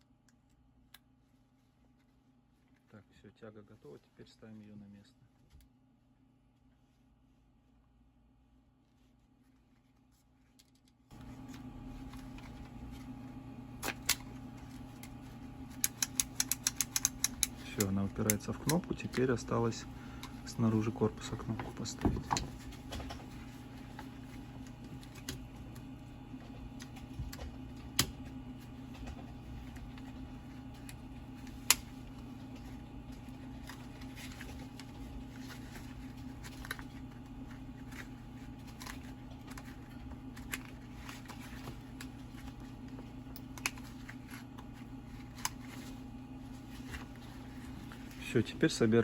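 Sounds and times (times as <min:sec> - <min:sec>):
steady low hum: 0:00.0 - 0:49.0
sharp plastic snaps: 0:15.8 - 0:18.9
plastic parts clicking: 0:15.8 - 0:19.3.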